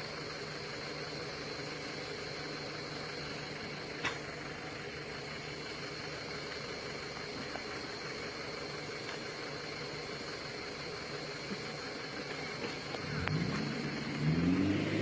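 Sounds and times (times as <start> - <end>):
pickup truck engine idling: 0.0 - 15.0.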